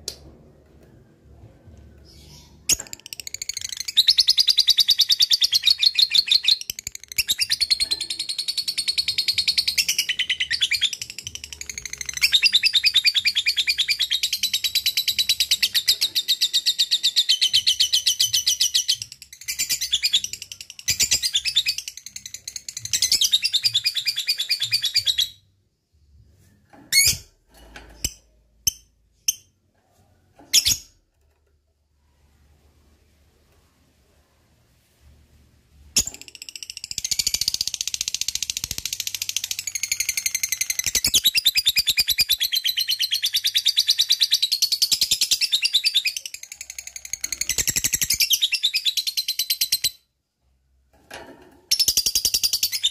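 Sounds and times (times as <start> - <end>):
bird chirps: 2.0 - 25.4.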